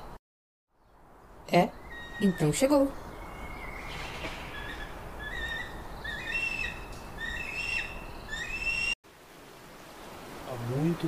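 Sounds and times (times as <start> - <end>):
bird chirping: 0.7 - 9.0
steady background hiss: 1.0 - 11.0.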